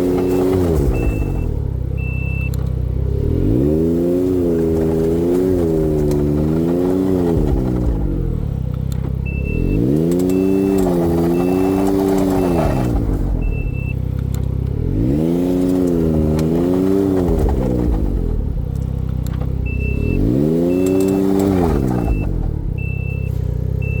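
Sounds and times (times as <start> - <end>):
high beeps: 0.0 - 2.5, 9.3 - 14.0, 19.6 - 21.1, 21.9 - 24.0
car engine revving: 0.0 - 24.0.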